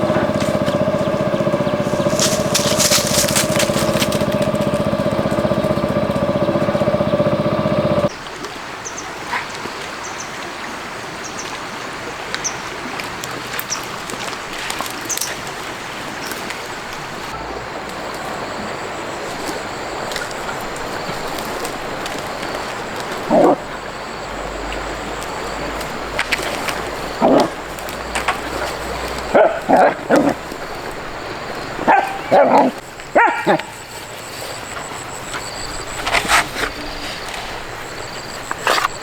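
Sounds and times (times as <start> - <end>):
small clicks: 0.0 - 8.1
dog yipping: 31.8 - 33.8.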